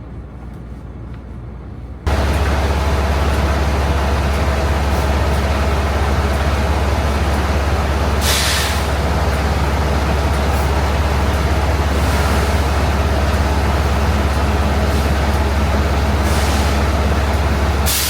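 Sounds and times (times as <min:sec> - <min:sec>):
diesel truck engine rumble: 0:01.6 - 0:18.0
air brake hiss: 0:08.2 - 0:08.9, 0:16.2 - 0:16.8.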